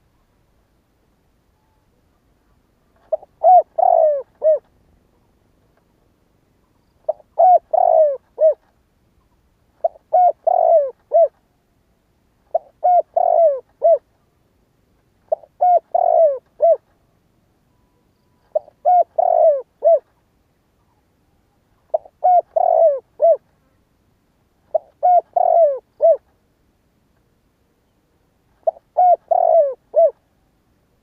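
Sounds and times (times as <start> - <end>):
dove cooing: 3.0 - 4.7, 7.0 - 8.6, 9.8 - 11.4, 12.5 - 14.1, 15.3 - 16.9, 18.5 - 20.1, 21.9 - 23.5, 24.7 - 26.3, 28.6 - 30.2.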